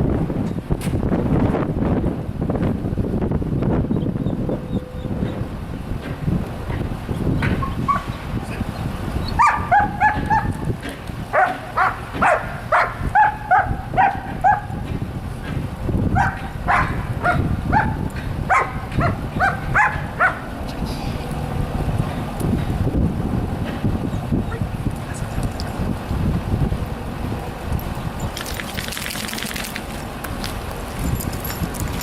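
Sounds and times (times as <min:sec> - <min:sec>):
dog barking: 0:09.4 - 0:10.6, 0:11.3 - 0:14.7, 0:16.2 - 0:20.5.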